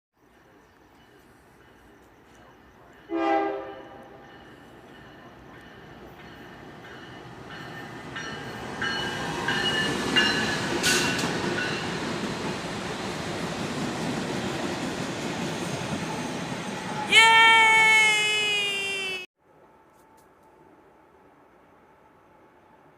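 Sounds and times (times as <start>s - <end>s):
train approaching: 0.2s - 22.9s
train horn blast: 3.1s - 4.2s.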